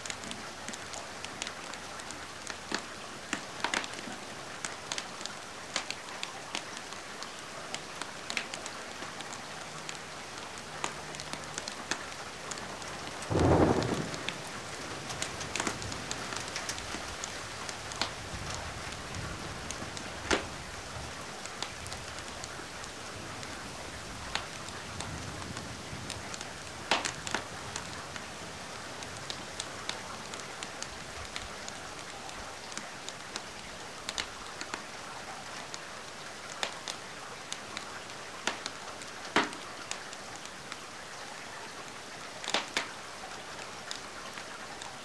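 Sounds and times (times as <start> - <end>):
rain hiss: 0.0 - 45.0
wood fire crackling and popping: 0.1 - 9.4, 10.8 - 20.6, 26.2 - 28.3, 36.4 - 37.8, 38.4 - 40.1, 42.4 - 42.9.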